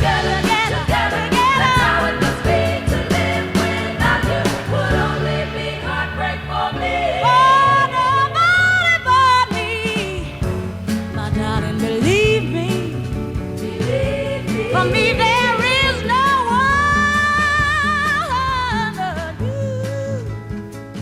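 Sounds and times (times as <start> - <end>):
soul singer with vibrato: 0.0 - 20.6
bass and band: 0.0 - 21.0.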